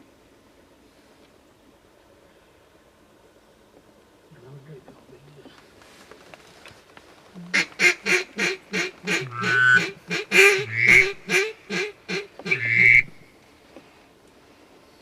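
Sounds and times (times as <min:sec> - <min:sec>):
duck call quacks: 0:07.5 - 0:13.2.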